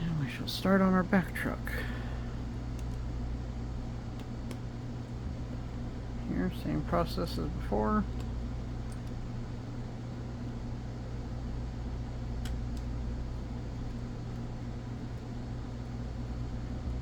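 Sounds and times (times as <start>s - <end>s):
low electrical hum: 0.0s - 17.0s
faint small clicks: 2.7s - 3.1s, 4.1s - 4.6s, 8.1s - 9.2s, 12.4s - 13.0s.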